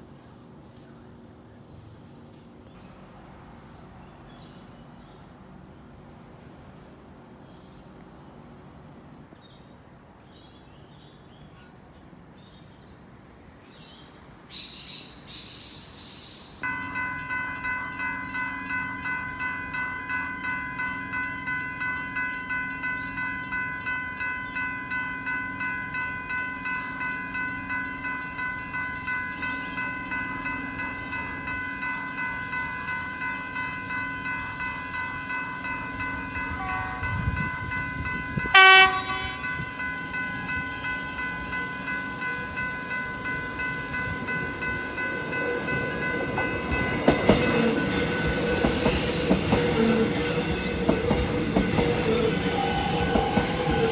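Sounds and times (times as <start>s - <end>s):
level crossing warning bell: 16.6s - 53.9s.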